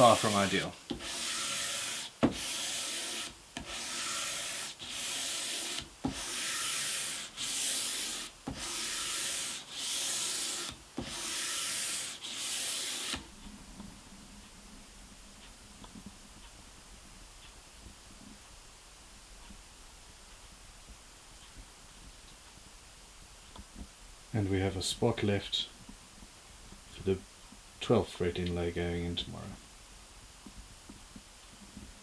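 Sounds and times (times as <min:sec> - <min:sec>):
sandpaper sanding wood: 0:00.0 - 0:13.2.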